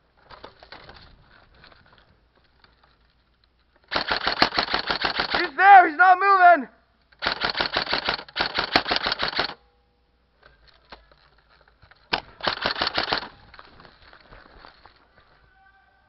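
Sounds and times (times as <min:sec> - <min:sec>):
airsoft rifle firing bursts: 0:03.9 - 0:05.6, 0:07.2 - 0:09.6, 0:12.1 - 0:13.4.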